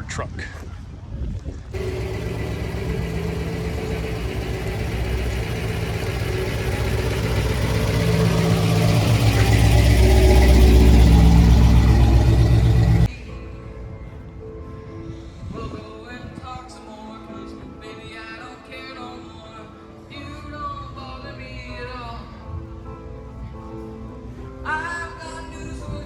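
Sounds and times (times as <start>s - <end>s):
car engine running: 1.8s - 13.1s.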